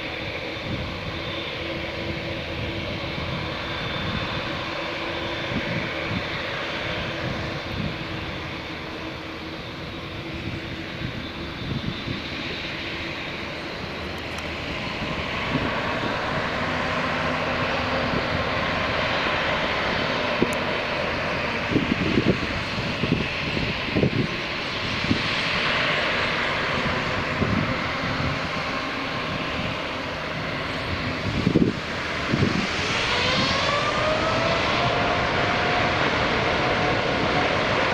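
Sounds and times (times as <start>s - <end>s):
jet engines roaring: 0.0s - 37.9s.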